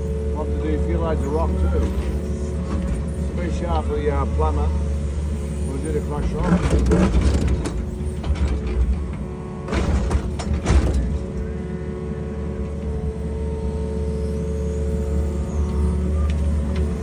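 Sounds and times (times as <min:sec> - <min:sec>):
diesel engine running: 0:00.0 - 0:17.0
hydraulic whine: 0:00.0 - 0:17.0
clattering knocks: 0:06.2 - 0:11.6.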